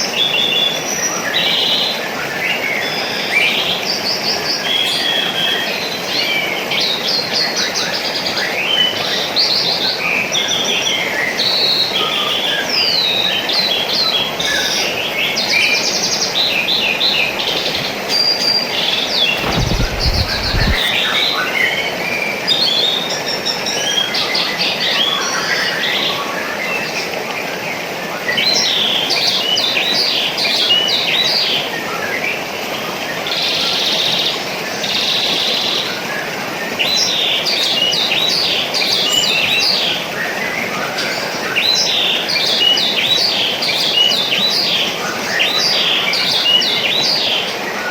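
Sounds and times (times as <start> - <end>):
rushing water: 0.0 - 47.9
small birds chirping: 0.1 - 21.6.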